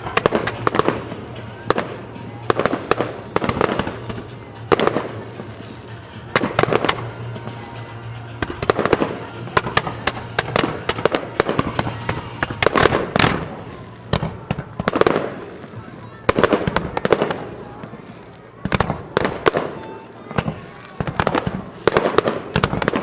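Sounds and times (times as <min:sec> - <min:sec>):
firework shells bursting: 0:00.0 - 0:17.4
music playing: 0:00.0 - 0:18.4
firework crackling: 0:00.0 - 0:23.0.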